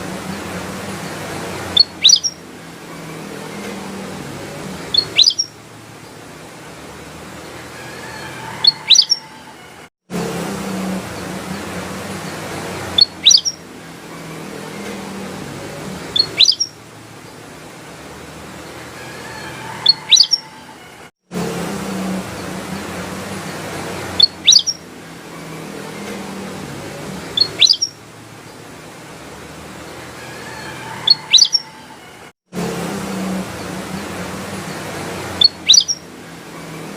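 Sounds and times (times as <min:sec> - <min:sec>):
bulbul whistling song: 0:01.7 - 0:02.4, 0:04.9 - 0:05.6, 0:08.5 - 0:09.4, 0:12.9 - 0:13.6, 0:16.1 - 0:16.8, 0:19.7 - 0:20.6, 0:24.2 - 0:24.8, 0:27.3 - 0:28.0, 0:31.0 - 0:31.8, 0:35.4 - 0:36.1.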